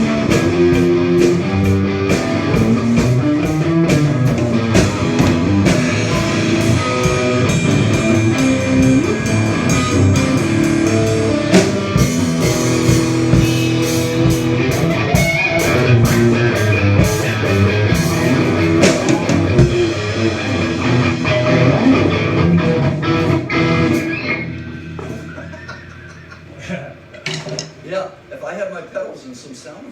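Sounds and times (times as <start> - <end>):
rock band playing: 0.0 - 28.0.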